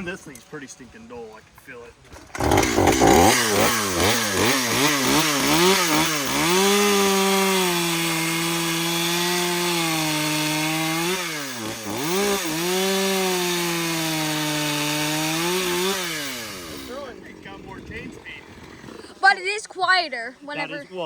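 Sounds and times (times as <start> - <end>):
chainsaw cutting wood: 2.1 - 17.2, 18.3 - 19.4.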